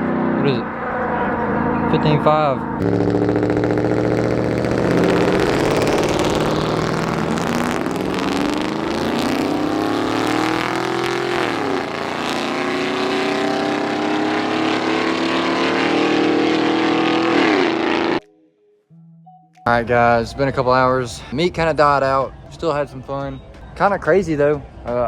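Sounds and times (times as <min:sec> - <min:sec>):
truck engine accelerating: 0:00.0 - 0:18.2.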